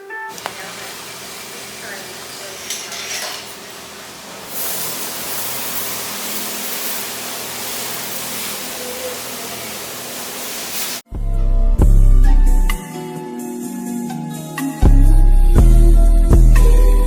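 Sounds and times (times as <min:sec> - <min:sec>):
steady rushing hiss: 0:00.3 - 0:11.0
loud music with heavy bass: 0:11.1 - 0:12.8.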